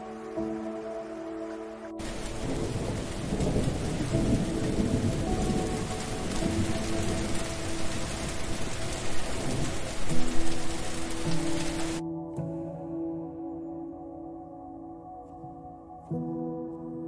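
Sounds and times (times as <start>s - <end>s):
heavy rain pouring: 0.0s - 12.0s
low rumble of thunder: 2.0s - 12.0s.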